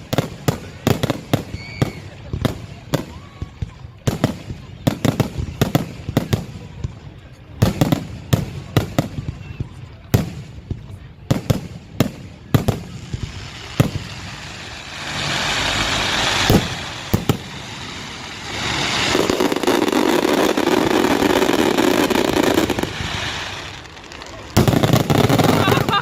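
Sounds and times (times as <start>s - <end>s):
fireworks banging: 0.0s - 26.0s
steady rushing noise: 13.4s - 24.0s.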